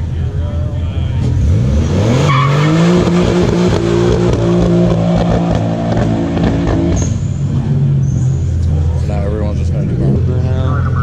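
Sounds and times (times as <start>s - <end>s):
car engine revving high: 1.2s - 9.0s.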